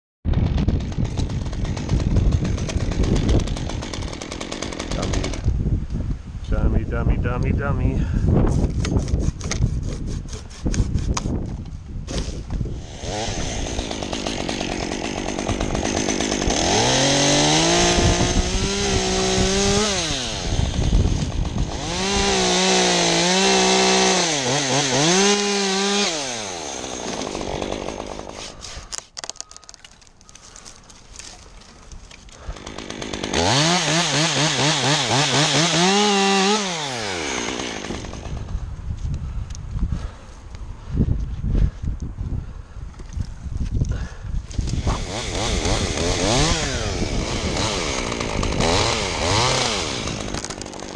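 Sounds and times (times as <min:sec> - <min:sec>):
chainsaw revving and idling: 0:00.4 - 0:05.6, 0:12.2 - 0:29.0, 0:30.4 - 0:38.6, 0:44.0 - 0:50.9.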